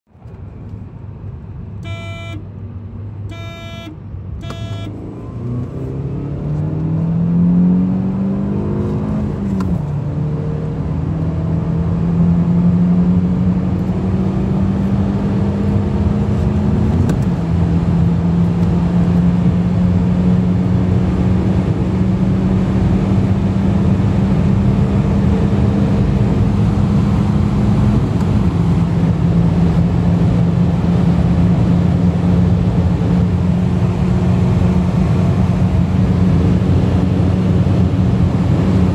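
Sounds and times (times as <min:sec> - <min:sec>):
road and wind noise: 0:00.1 - 0:38.9
short electronic beeps: 0:01.8 - 0:02.4, 0:03.3 - 0:05.2
car engine accelerating: 0:04.4 - 0:38.9.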